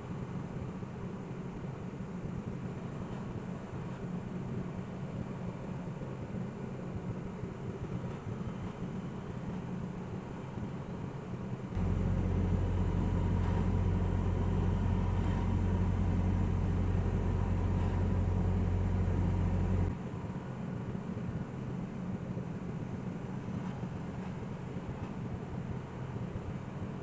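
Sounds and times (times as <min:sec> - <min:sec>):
loud low drone: 0:11.8 - 0:19.9
truck road and engine noise: 0:11.8 - 0:20.0.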